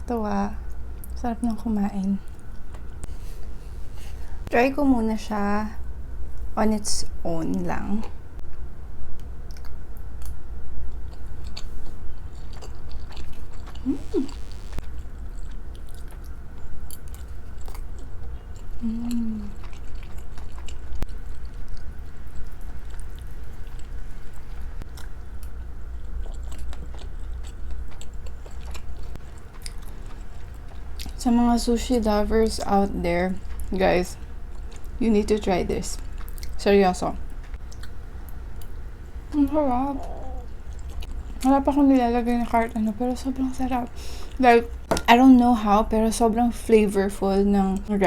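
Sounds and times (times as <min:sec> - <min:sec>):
chewing with wet clicks: 0:00.6 - 0:01.6, 0:09.2 - 0:31.3, 0:32.4 - 0:36.6, 0:37.2 - 0:41.6.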